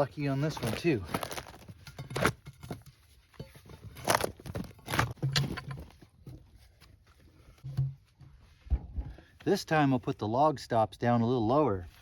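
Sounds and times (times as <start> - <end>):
handling noises: 0.0 - 8.2.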